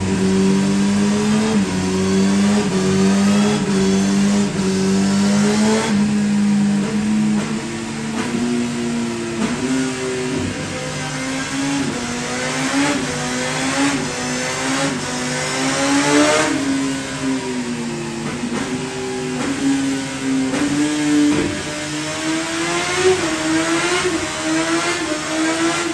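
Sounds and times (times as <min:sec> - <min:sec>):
motorcycle engine running: 0:00.0 - 0:25.2.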